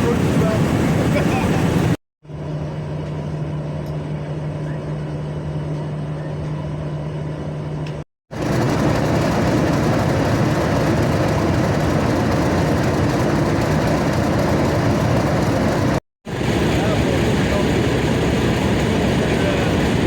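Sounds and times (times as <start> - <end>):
rough train running noise: 0.0 - 20.0
train engine hum: 0.0 - 20.0.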